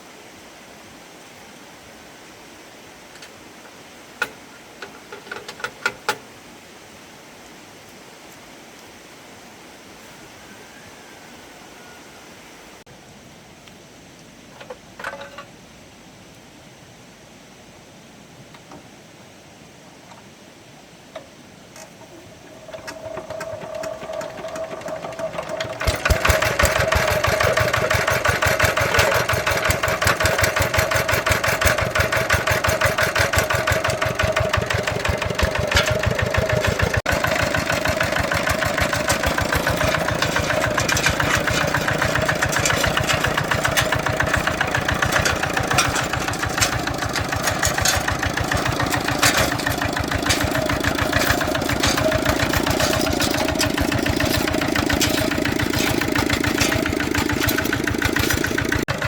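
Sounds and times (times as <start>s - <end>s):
tractor engine starting and running: 22.4s - 59.0s.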